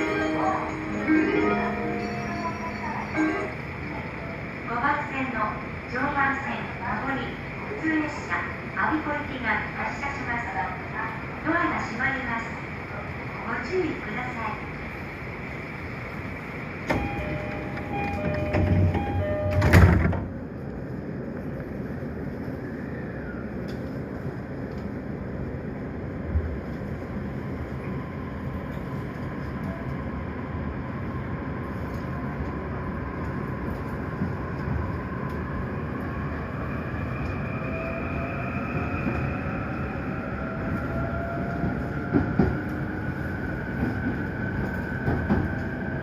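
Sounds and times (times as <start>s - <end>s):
train running noise: 0.0s - 46.0s
train clunks: 16.8s - 20.4s.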